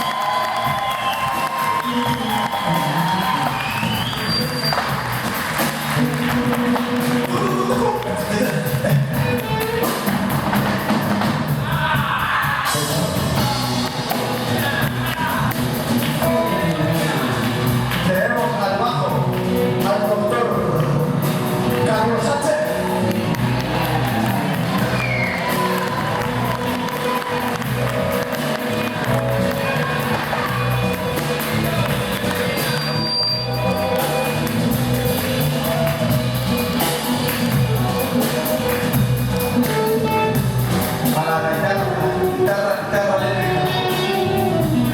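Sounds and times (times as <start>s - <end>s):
percussion hits: 0.0s - 12.1s
live band playing: 0.0s - 44.9s
person singing: 7.2s - 9.3s, 41.0s - 44.9s.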